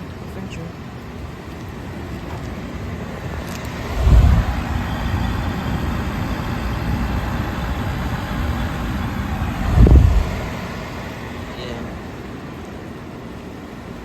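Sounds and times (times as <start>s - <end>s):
air conditioner running: 0.0s - 14.0s
brief low rumble: 3.6s - 5.7s.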